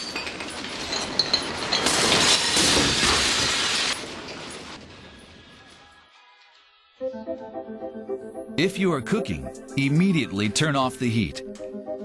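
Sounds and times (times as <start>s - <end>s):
glass and dishes rattling and shattering: 0.0s - 4.7s.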